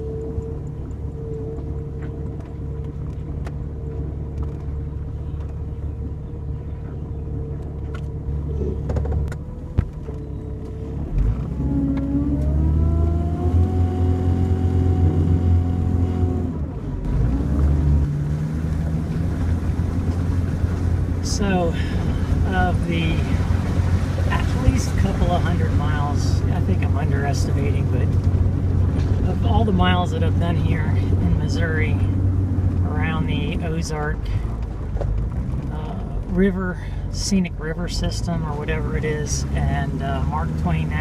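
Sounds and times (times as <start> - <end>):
car engine running: 0.0 - 41.0
road noise: 0.0 - 41.0.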